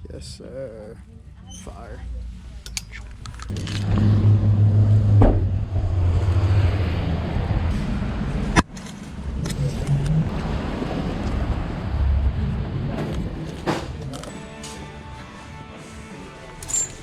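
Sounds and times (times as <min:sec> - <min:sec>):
car road and engine rumble: 0:02.0 - 0:14.6.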